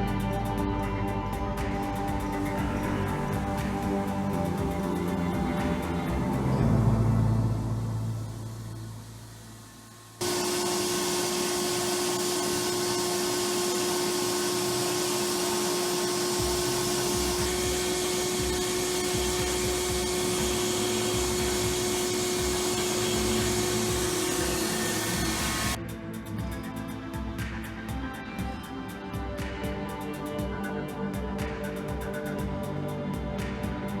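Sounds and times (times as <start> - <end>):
machine motor hissing and whining: 8.7 - 27.2.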